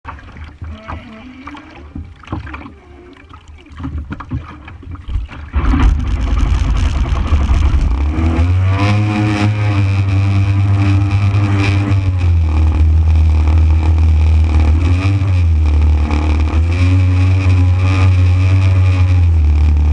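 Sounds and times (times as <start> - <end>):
motorized surfboard engine revving: 5.4 - 19.9.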